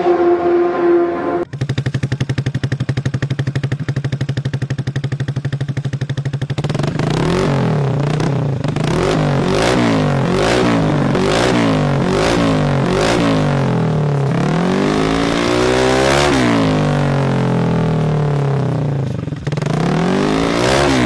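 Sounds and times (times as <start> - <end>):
brief held tone: 0.0 - 1.5
scooter engine idling and revving: 1.4 - 21.0.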